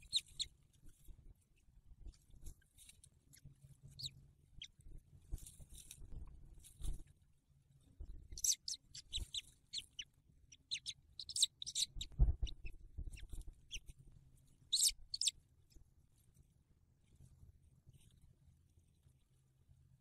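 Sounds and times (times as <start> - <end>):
high-pitched bird chirps: 0.0 - 0.5, 4.0 - 4.8, 8.3 - 13.9, 14.7 - 15.3
dull low thump: 12.0 - 13.2.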